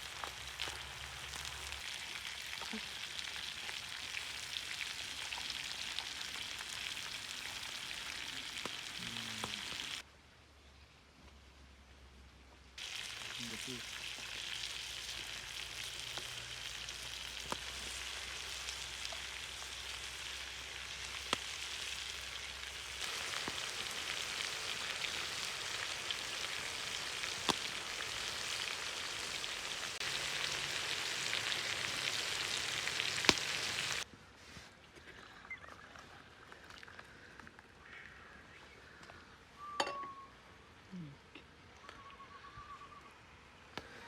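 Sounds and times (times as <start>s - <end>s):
meat sizzling in a pan: 0.0s - 10.0s, 12.8s - 34.0s.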